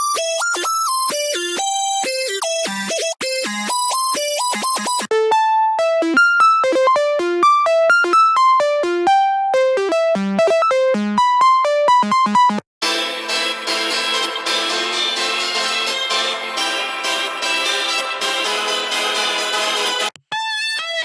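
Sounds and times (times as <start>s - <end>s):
synth lead melody: 5.1s - 20.2s.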